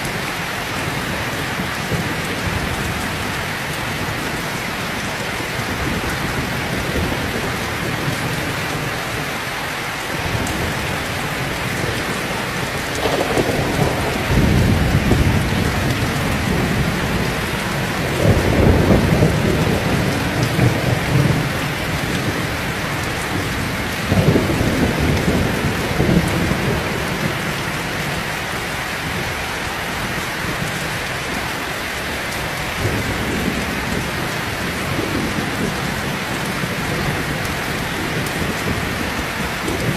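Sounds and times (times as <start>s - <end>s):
heavy rain falling: 0.0s - 39.9s
thunder rumbling: 10.1s - 39.9s.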